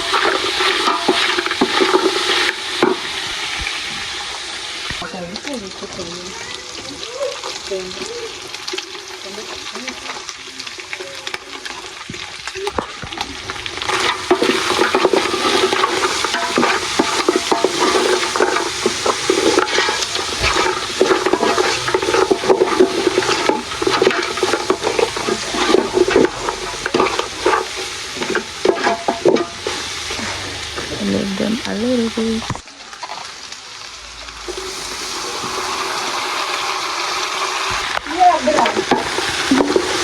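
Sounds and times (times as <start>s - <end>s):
meat sizzling: 0.0s - 40.0s
spoon scraping a pot: 13.9s - 30.9s.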